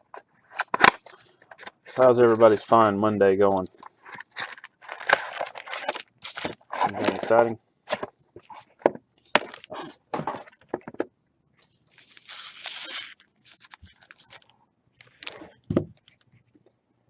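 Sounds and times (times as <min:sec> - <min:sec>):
wrappers crinkling and tearing: 0:04.4 - 0:07.3, 0:11.9 - 0:15.5.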